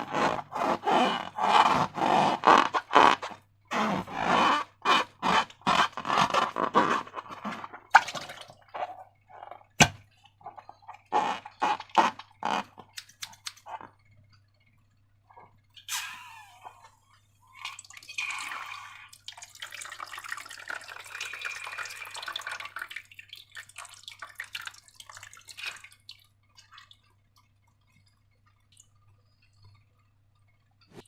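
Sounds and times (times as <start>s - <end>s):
slime squelching: 0.0s - 13.9s.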